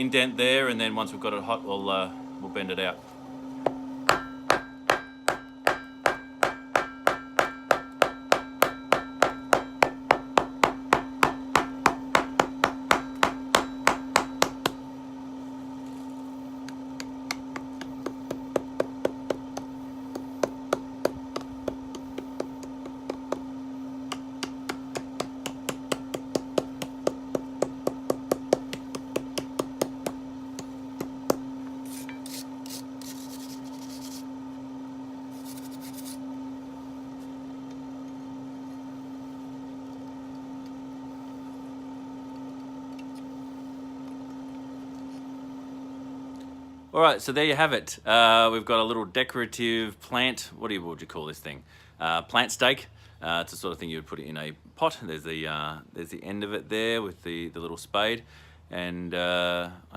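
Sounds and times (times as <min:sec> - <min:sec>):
steady hum: 0:00.0 - 0:59.9
hammer ringing on steel: 0:04.1 - 0:14.7.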